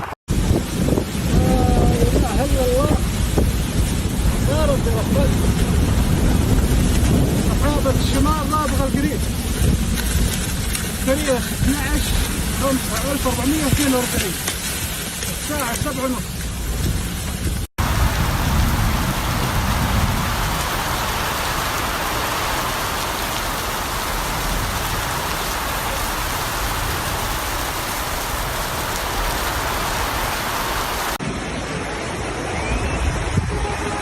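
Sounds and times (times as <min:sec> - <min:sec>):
heavy rain falling: 0:00.0 - 0:34.0.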